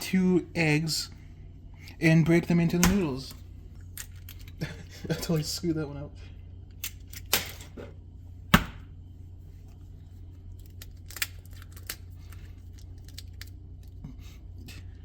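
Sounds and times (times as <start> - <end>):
steady low hum: 0.0 - 15.0
egg shell cracking: 10.5 - 14.0.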